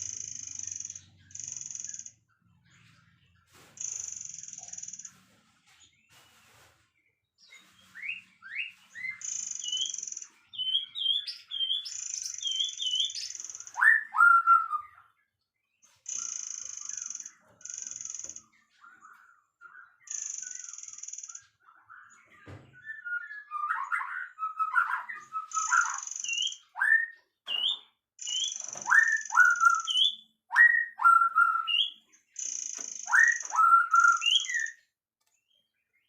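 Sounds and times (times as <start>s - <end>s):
songbird singing: 6.0s - 36.0s.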